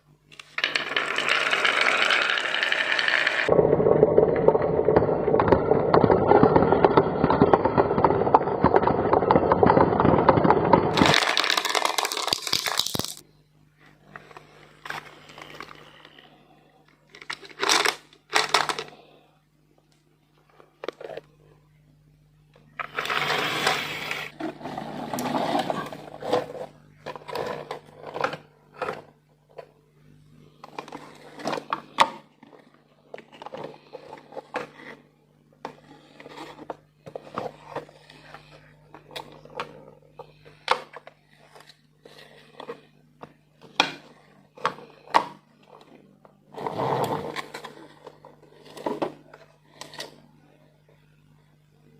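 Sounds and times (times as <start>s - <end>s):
steady low hum: 0.0s - 51.9s
marbles clicking and knocking: 0.6s - 13.2s
marbles rolling down plastic run: 0.6s - 13.2s.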